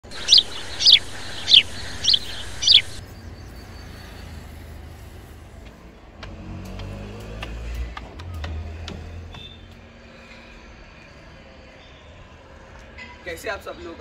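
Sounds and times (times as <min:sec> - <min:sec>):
bird chirping: 0:00.0 - 0:04.5.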